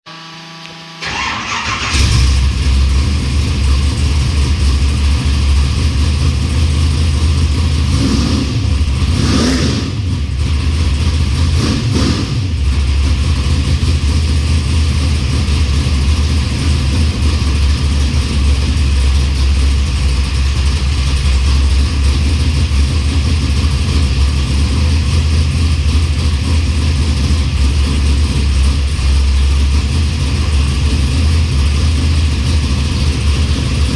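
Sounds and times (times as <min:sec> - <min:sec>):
engine starting: 0:01.0 - 0:02.8
engine idling: 0:01.0 - 0:33.9
engine revving: 0:01.0 - 0:33.9.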